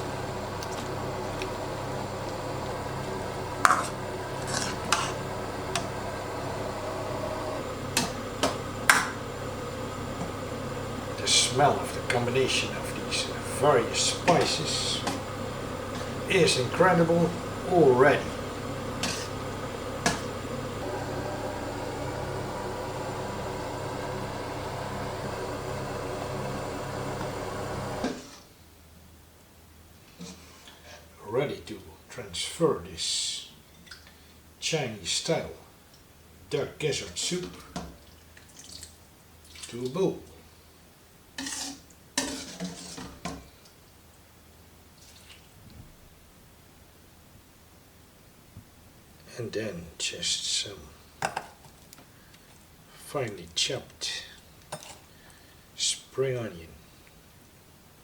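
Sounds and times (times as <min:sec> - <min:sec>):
soup simmering: 0:00.0 - 0:28.4
appliance fan humming: 0:00.0 - 0:30.2, 0:31.0 - 0:58.0.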